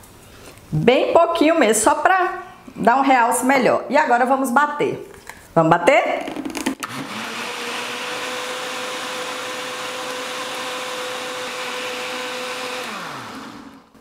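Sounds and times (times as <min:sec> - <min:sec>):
blender motor running: 0:06.8 - 0:14.0
blender motor winding down: 0:06.8 - 0:14.0.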